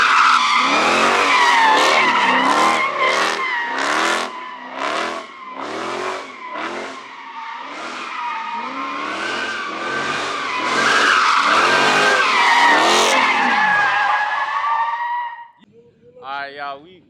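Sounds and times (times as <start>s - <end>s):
tyres squealing: 0.0s - 4.2s, 8.0s - 15.3s
car engine revving: 0.0s - 14.2s.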